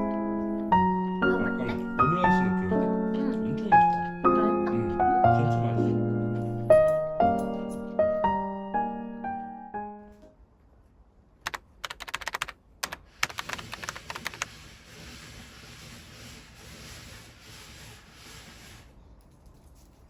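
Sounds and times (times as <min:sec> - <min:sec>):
sharp clicks and taps: 0:11.5 - 0:14.5.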